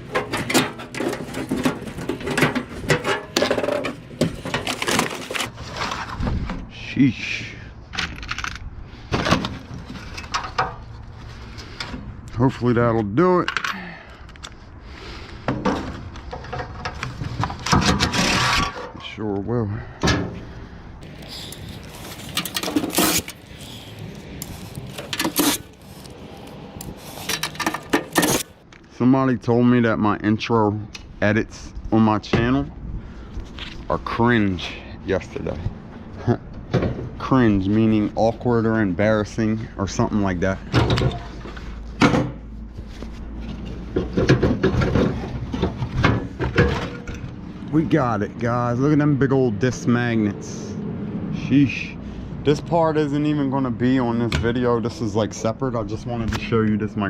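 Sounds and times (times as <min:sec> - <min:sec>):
hand tools on sheet metal: 0:00.0 - 0:05.5, 0:17.4 - 0:19.0, 0:21.0 - 0:28.6.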